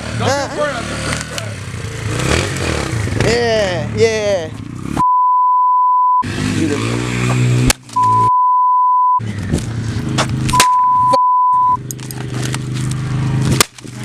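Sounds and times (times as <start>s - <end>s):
censor bleeps: 5.0s - 6.2s, 8.0s - 9.2s, 10.5s - 11.8s.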